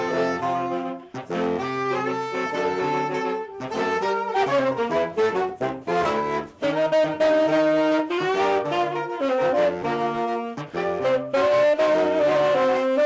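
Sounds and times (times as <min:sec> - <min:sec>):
saxophone quartet in harmony: 0:00.0 - 0:13.0.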